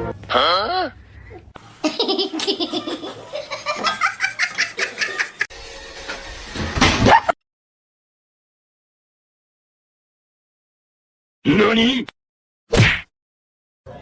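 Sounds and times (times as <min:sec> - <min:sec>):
person laughing heartily: 0:01.8 - 0:05.5.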